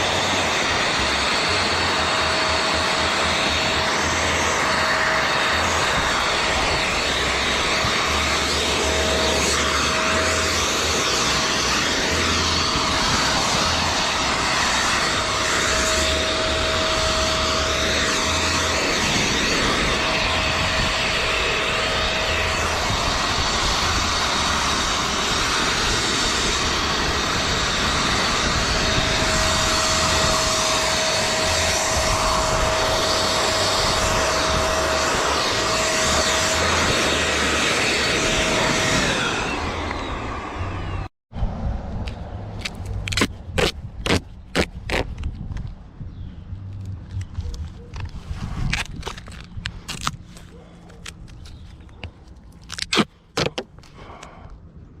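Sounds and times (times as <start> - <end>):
leaf blower rushing air: 0.0 - 45.2, 46.6 - 54.4.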